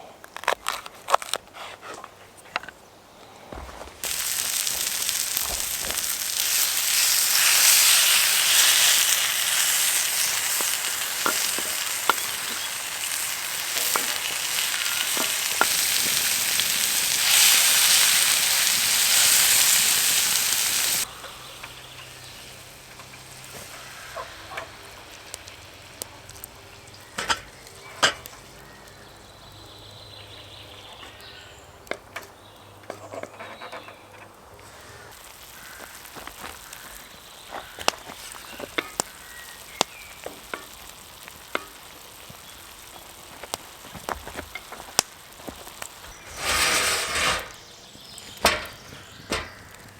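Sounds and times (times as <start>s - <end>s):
food sizzling in a pan: 4.0s - 29.6s, 35.1s - 48.4s.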